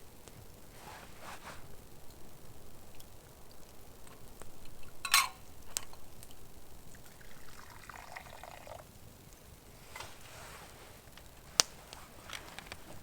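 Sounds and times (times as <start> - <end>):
pouring trickle: 6.2 - 9.2.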